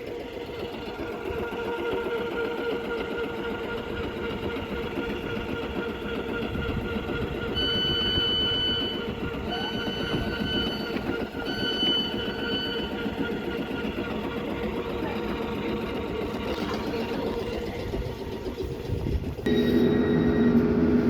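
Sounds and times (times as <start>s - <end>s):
train rail rumble: 0.0s - 21.0s
humming tone: 0.6s - 14.5s, 19.4s - 21.0s
faint high steady tones: 3.0s - 16.2s, 19.4s - 21.0s.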